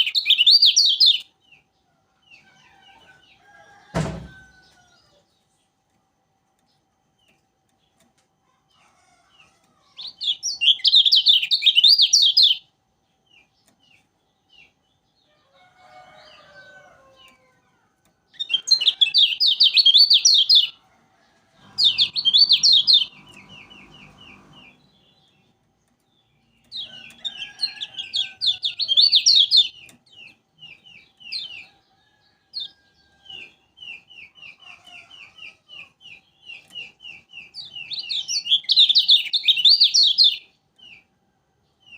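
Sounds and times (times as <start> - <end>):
songbird trilling chatter: 18.4 - 20.7, 21.7 - 24.8.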